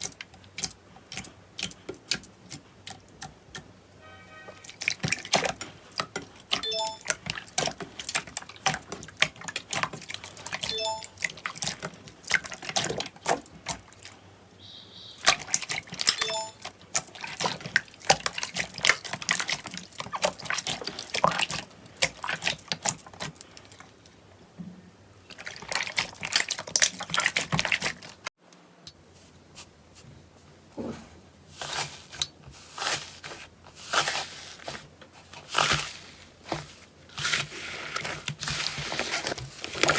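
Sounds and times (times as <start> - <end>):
slime squelching wet pops: 4.7 - 14.1, 15.2 - 23.5, 25.3 - 28.2.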